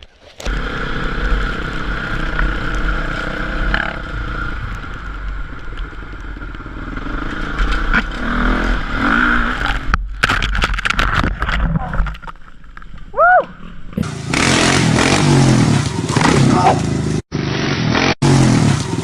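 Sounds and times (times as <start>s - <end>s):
dirt bike engine running: 0.4s - 9.9s, 14.0s - 19.0s
low rumble: 0.5s - 17.2s.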